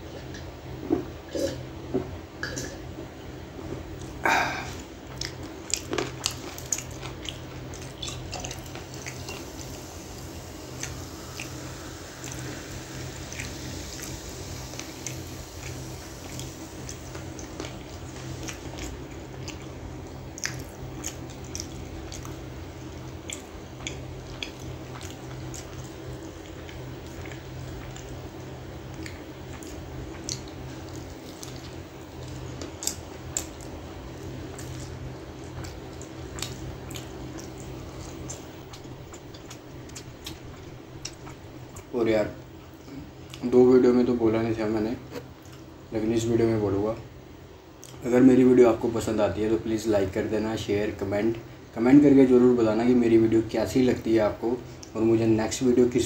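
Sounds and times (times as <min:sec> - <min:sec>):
steady low hum: 0:00.0 - 0:56.0
wet chewing clicks and smacks: 0:05.1 - 0:09.7, 0:13.3 - 0:41.9, 0:45.1 - 0:45.7, 0:47.8 - 0:48.0.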